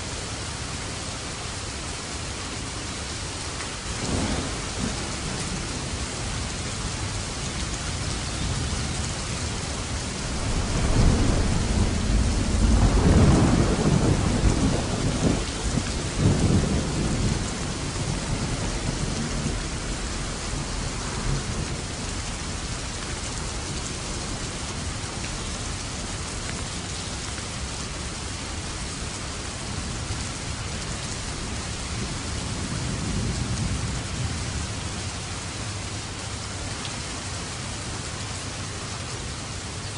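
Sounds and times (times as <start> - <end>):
heavy rain: 0.0 - 39.9
thunder rumbling: 3.9 - 26.6, 31.3 - 35.0.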